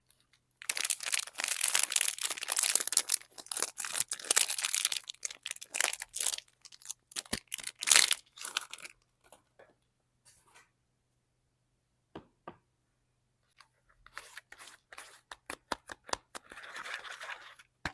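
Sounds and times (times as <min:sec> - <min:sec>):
wrapper crinkling and tearing: 0:00.6 - 0:09.0.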